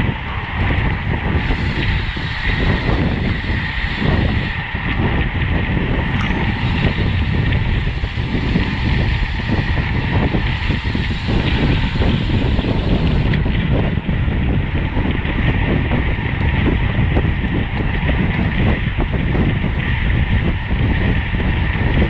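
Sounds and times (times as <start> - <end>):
thin steady whine: 0.0 - 22.0
wind buffeting microphone: 0.0 - 22.0.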